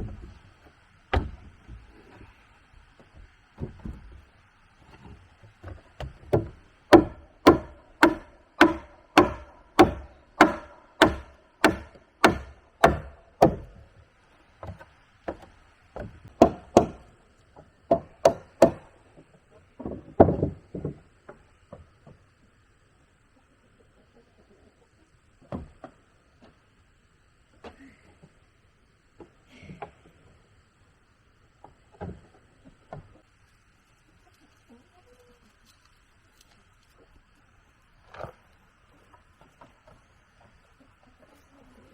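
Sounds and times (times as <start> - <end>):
hand tool striking timber: 1.1 - 1.8, 5.6 - 13.9, 14.6 - 17.1, 17.9 - 18.9.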